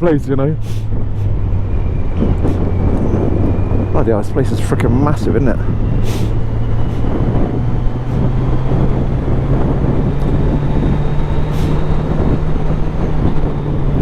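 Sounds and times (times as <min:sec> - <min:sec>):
motorcycle engine running: 0:00.0 - 0:14.0
wind on microphone: 0:00.0 - 0:14.0.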